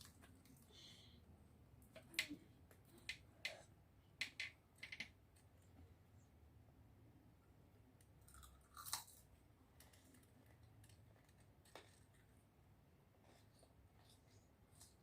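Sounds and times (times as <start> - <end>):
chewing crispy fried food: 8.2 - 12.4.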